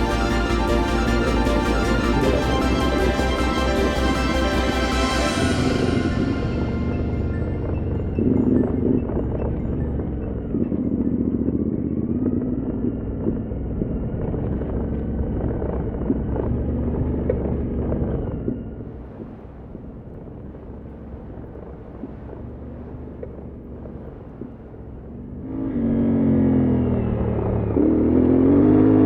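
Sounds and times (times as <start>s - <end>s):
motorcycle engine running: 5.0s - 19.3s, 24.9s - 29.0s.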